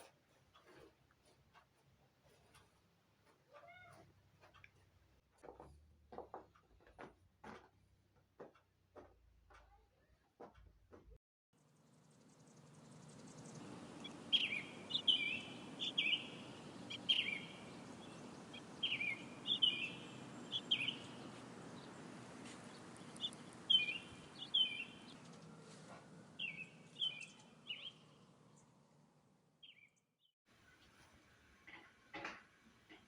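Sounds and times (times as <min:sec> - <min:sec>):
bird chirping: 0:12.4 - 0:25.2, 0:26.4 - 0:28.7.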